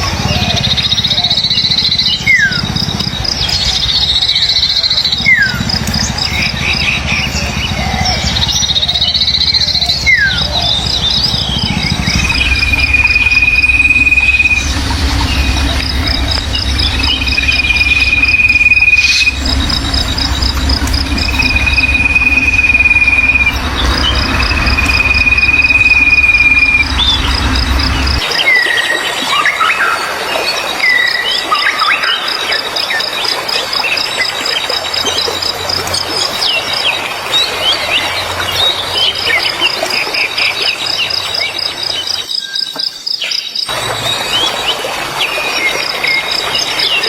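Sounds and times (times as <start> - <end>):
low rumble: 0.1 - 28.3
insect pulsed chirping: 0.4 - 28.3
songbird whistling and chirping: 7.3 - 30.0.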